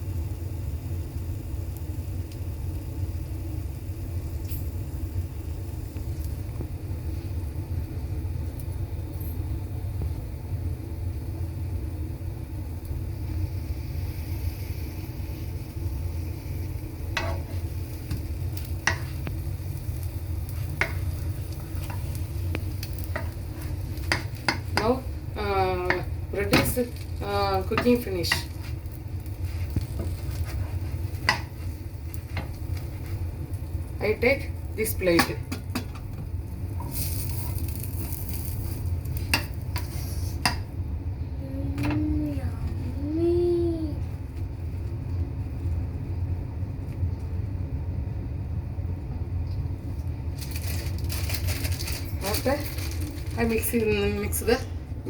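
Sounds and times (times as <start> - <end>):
bread frying in a pan: 0.0 - 41.0, 42.1 - 48.7, 49.6 - 54.8
utensil scraping a pan: 17.1 - 17.8, 27.6 - 33.2, 36.8 - 40.6.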